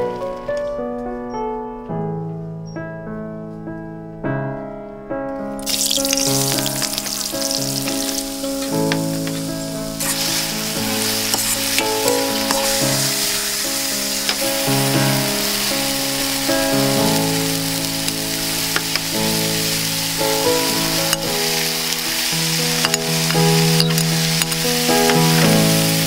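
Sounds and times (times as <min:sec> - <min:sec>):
piano background music: 0:00.0 - 0:26.0
chicken sizzling in hot oil: 0:05.6 - 0:26.0
metal ladle clicking on pan: 0:22.8 - 0:25.6.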